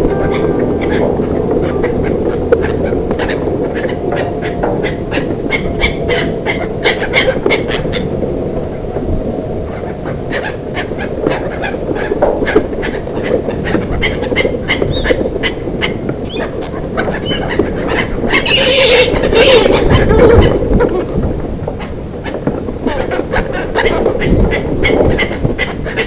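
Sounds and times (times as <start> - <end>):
low rumble: 0.0 - 14.5
birds chirping: 0.0 - 20.7.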